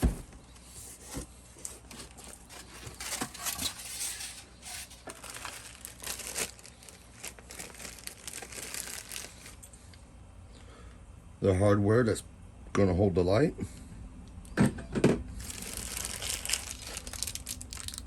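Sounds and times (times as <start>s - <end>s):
wrapping crinkling and rustling: 0.8s - 9.9s, 15.4s - 18.0s.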